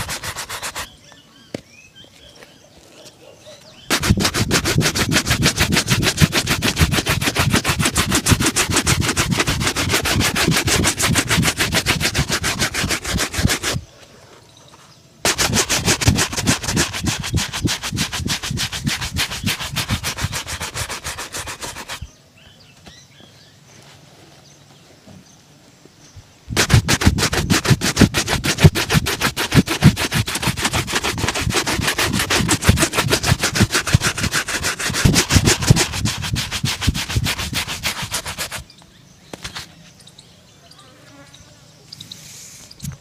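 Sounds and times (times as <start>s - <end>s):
brush scrubbing a shoe: 0.0s - 0.9s, 3.9s - 13.9s, 15.3s - 22.1s, 26.5s - 38.6s.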